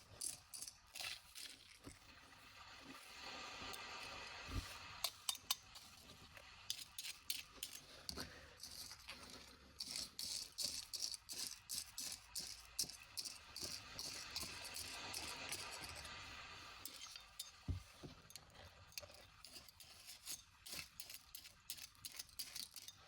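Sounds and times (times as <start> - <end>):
small hard objects rattling: 0.0 - 1.9, 6.7 - 16.1, 19.3 - 23.0.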